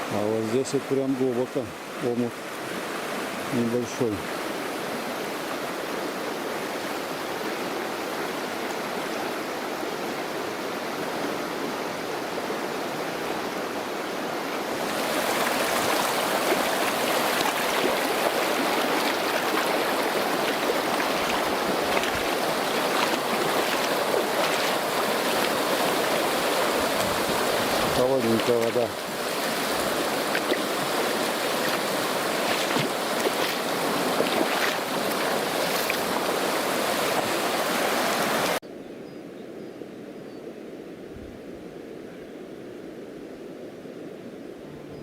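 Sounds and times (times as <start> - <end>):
stream water rushing: 0.0 - 38.6.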